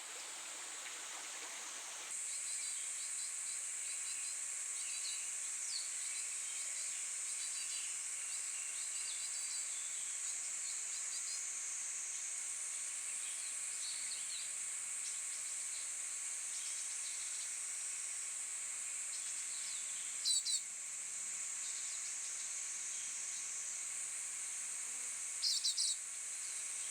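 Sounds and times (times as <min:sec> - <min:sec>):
insect chorus droning: 0:00.0 - 0:03.6, 0:13.8 - 0:26.9.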